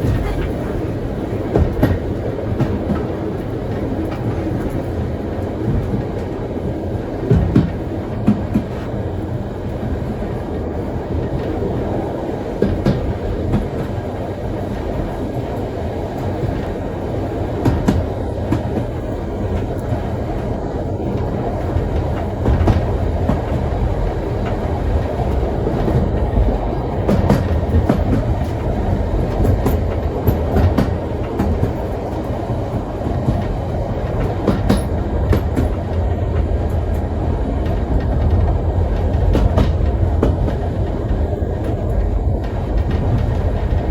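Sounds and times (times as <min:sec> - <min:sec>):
train wheels rumbling on rails: 0:00.0 - 0:43.9
sharp clicks and knocks: 0:25.4 - 0:32.3.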